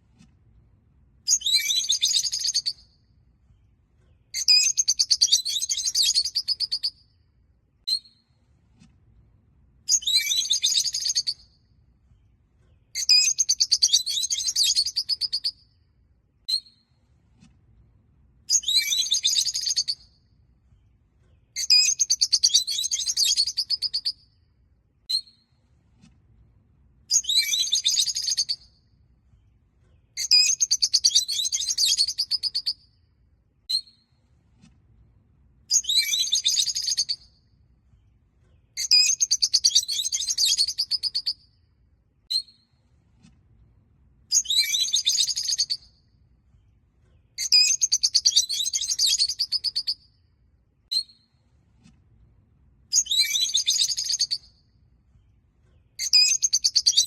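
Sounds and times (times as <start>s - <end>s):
short bird chirps: 1.3s - 3.0s, 4.1s - 7.1s, 9.9s - 11.5s, 12.7s - 15.7s, 18.5s - 20.2s, 21.3s - 24.3s, 27.1s - 28.8s, 29.9s - 32.9s, 35.7s - 37.4s, 38.5s - 41.5s, 44.3s - 46.0s, 47.2s - 50.2s, 50.9s - 51.6s, 52.9s - 54.7s.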